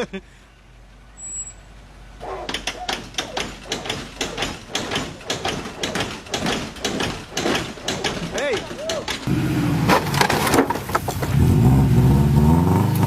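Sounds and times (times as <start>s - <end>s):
rapid knocks and clicks: 2.5s - 9.3s.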